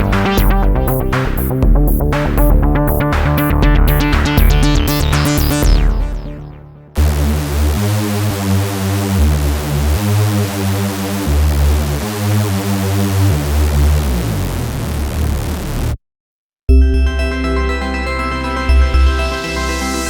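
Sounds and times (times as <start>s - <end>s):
synth rhythmic high hits: 0.0s - 10.4s
deep pulsing synth bass: 0.0s - 16.0s.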